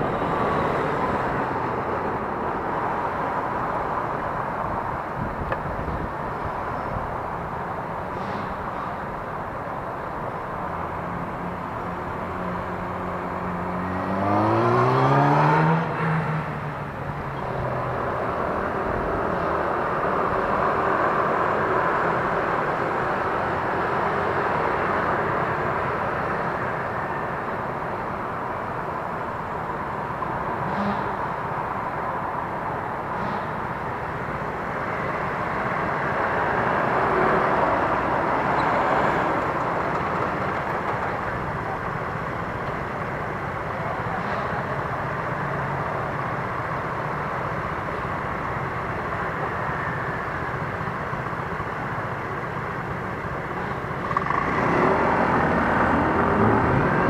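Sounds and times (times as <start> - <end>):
wind and road noise: 0.0 - 57.0
vehicle engine revving: 13.7 - 16.3.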